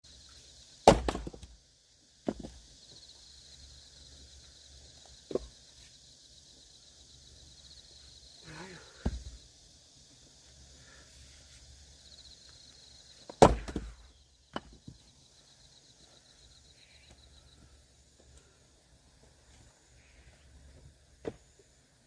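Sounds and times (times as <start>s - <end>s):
axe chopping firewood: 0.8s - 1.5s, 2.2s - 2.6s, 9.0s - 9.4s, 13.3s - 14.8s
wood clattering: 2.2s - 2.6s, 13.2s - 15.0s.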